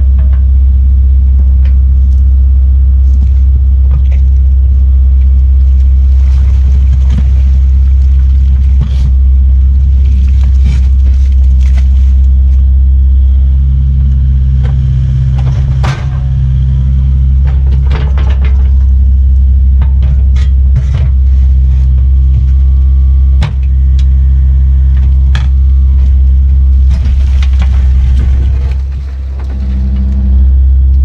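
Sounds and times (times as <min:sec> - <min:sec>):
excavator diesel engine running: 0:00.0 - 0:31.0
sharp knocks and clanks: 0:14.6 - 0:22.6, 0:23.4 - 0:24.1.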